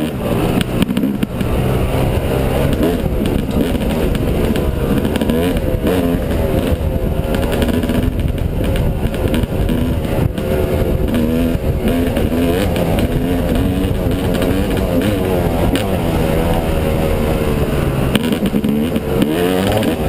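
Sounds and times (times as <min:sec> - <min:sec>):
dirt bike engine revving: 0:00.0 - 0:20.0
wind buffeting microphone: 0:00.0 - 0:20.0.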